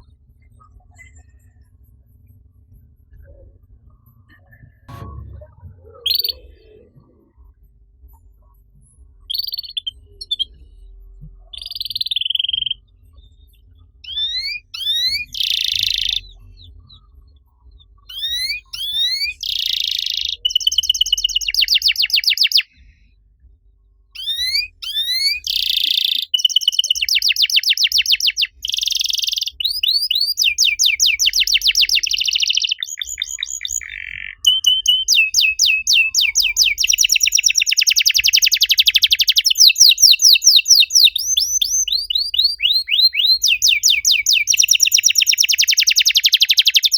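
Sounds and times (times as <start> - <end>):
canary singing: 5.8 - 7.2, 9.3 - 10.6, 11.4 - 12.9, 14.0 - 16.9, 18.0 - 22.7, 24.2 - 46.9.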